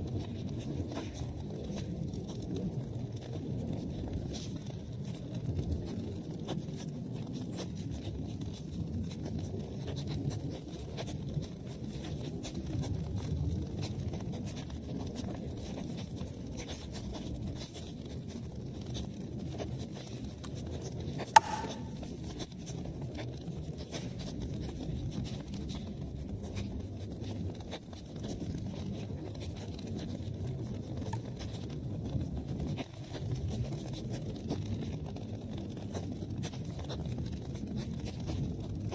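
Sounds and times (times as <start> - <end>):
loud sharp pop from fire: 21.4 - 22.0.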